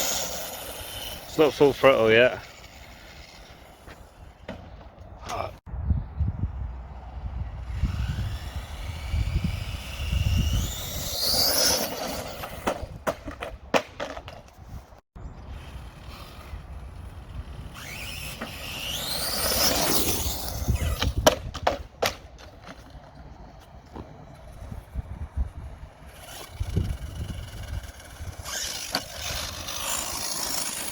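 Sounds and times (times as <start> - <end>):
toy car motor and gears whining: 0.0 - 4.5, 6.7 - 13.0, 15.4 - 21.7, 23.0 - 30.9
tyres rumbling on ground: 15.3 - 30.9.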